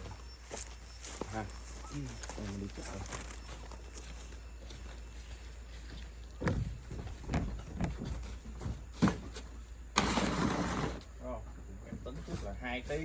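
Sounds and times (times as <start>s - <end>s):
steady low hum: 0.0s - 13.0s
knocks and thumps: 6.4s - 9.5s.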